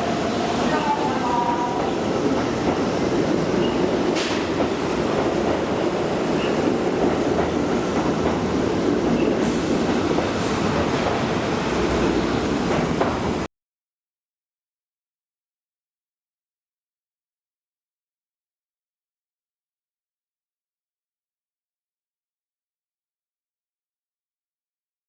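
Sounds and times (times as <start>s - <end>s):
train rumbling on track: 0.0s - 13.5s.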